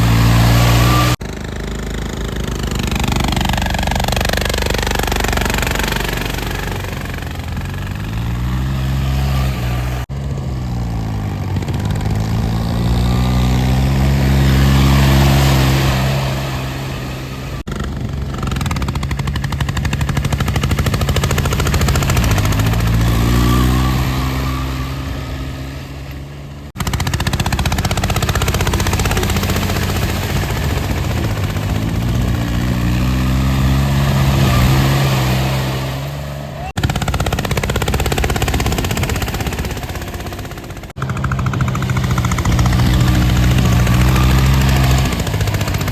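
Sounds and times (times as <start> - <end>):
diesel tractor engine under load: 0.0 - 45.9.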